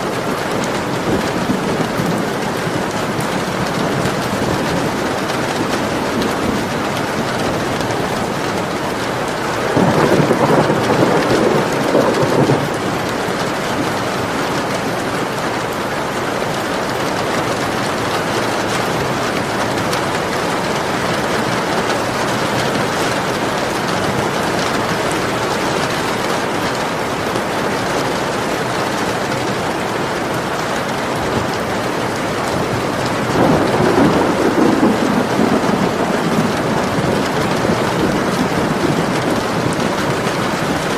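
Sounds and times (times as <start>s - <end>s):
steady rain: 0.0s - 40.9s
low rolls of thunder: 0.3s - 14.0s, 32.5s - 40.9s.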